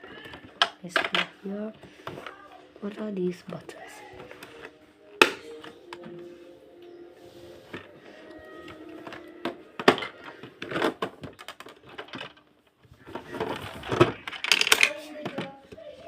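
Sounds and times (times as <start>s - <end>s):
plastic toy pieces clicking: 9.8s - 12.5s, 13.4s - 15.5s.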